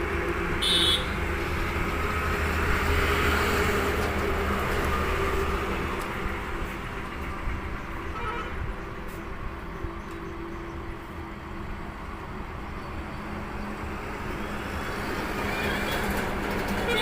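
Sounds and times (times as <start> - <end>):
truck engine and road noise: 0.0 - 17.0.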